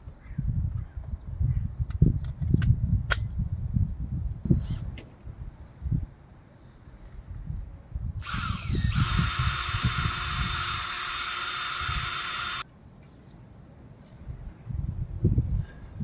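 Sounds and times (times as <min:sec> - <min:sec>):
power drill whining: 0:08.2 - 0:12.6.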